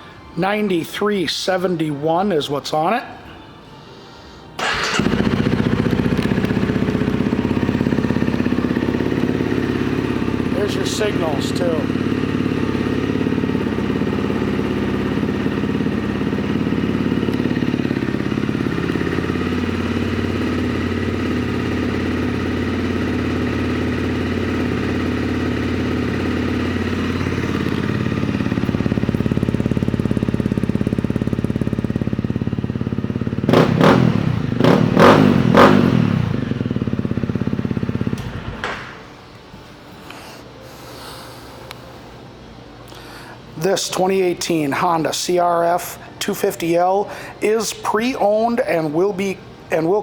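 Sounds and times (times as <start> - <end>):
motorcycle engine idling and revving: 4.6 - 39.1.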